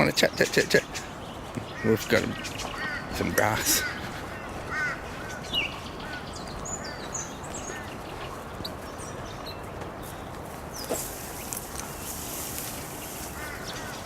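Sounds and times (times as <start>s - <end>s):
birds chirping and whistling: 0.0s - 14.0s.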